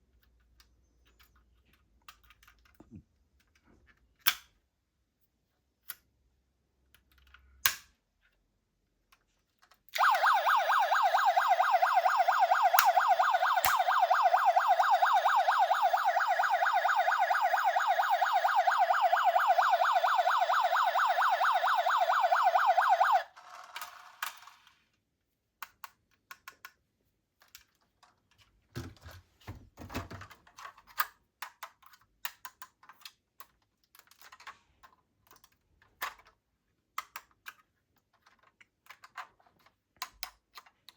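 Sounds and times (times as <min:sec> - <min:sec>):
toy siren warbling: 0:10.0 - 0:23.3.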